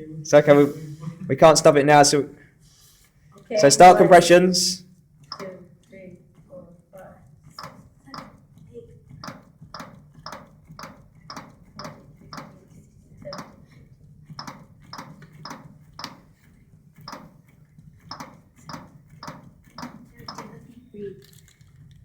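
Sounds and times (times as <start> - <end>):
cpr manikin clicking: 5.2 - 6.5, 7.2 - 20.8.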